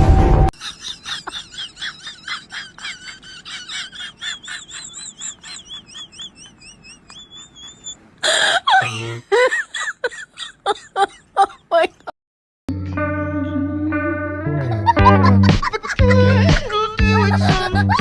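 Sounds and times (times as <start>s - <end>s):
high bird chirps: 4.2s - 8.0s.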